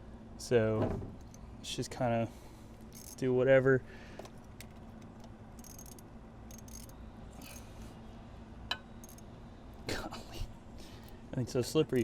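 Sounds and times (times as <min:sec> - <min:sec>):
steady low hum: 0:00.0 - 0:12.0
hand tool clicking and scraping: 0:02.8 - 0:03.2, 0:04.6 - 0:07.7.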